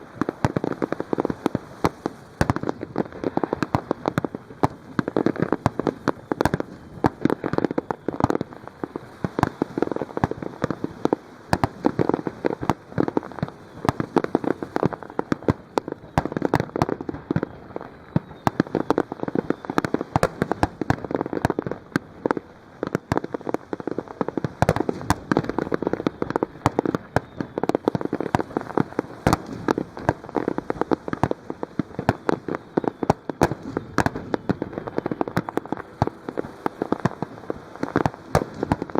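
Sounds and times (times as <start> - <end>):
fireworks bursting and crackling: 0.0 - 38.9.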